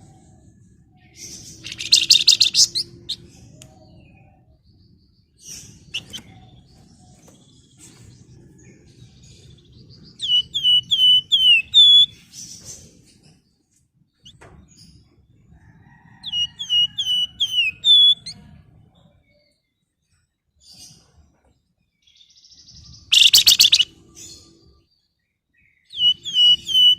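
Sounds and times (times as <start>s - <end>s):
faint low rumble: 0.0s - 17.4s
songbird whistling falling notes: 5.9s - 6.4s, 10.2s - 12.1s, 23.1s - 23.9s, 25.9s - 26.9s.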